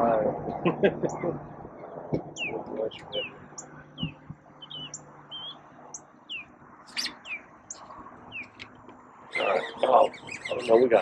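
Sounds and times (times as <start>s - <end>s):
birds chirping: 0.0s - 11.0s
high bird notes: 2.3s - 8.7s, 9.3s - 11.0s.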